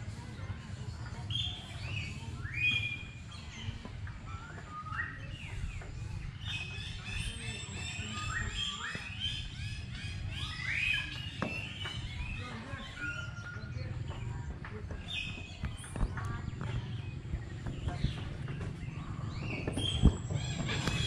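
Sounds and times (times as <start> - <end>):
small birds chirping: 0.0 - 21.0
steady low rumble: 13.8 - 21.0.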